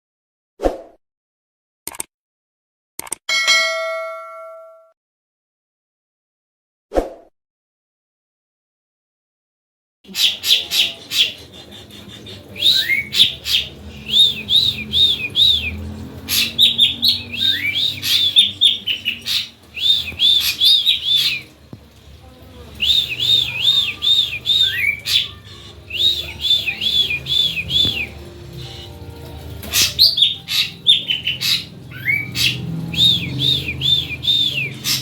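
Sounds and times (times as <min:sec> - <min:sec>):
bird singing repeated notes: 0:12.3 - 0:21.5, 0:22.8 - 0:29.0, 0:29.8 - 0:35.0.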